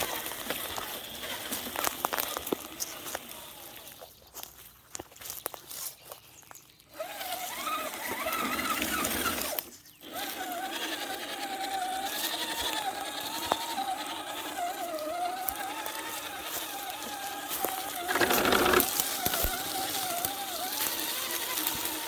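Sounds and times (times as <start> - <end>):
electric motor whining: 0.0 - 4.0, 6.9 - 22.0.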